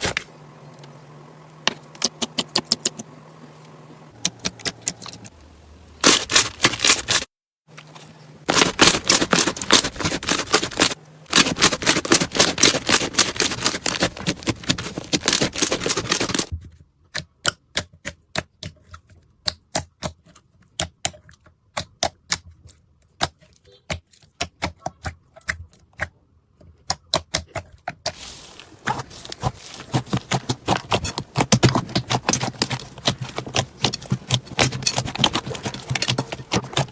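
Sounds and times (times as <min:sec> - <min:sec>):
slime squeezed crackling: 0:28.2 - 0:36.9.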